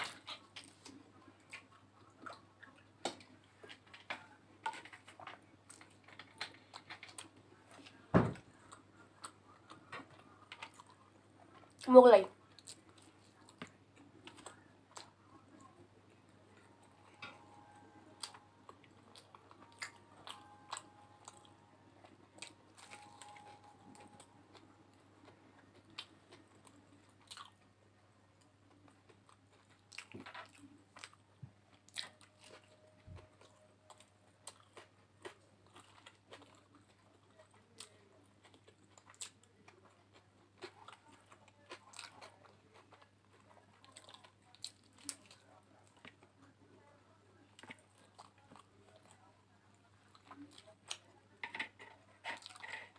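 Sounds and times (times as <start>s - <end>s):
person chewing crunchy bread: 0.0s - 11.8s, 16.5s - 27.7s, 28.4s - 46.3s.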